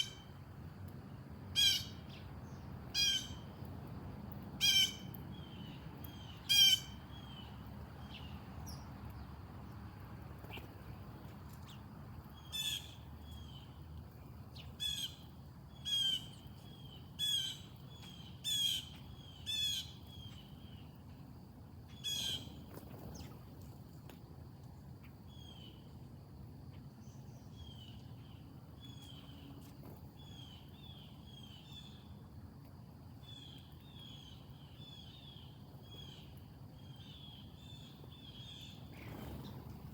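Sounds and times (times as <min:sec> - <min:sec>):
harsh bird calls: 0:04.6 - 0:07.5.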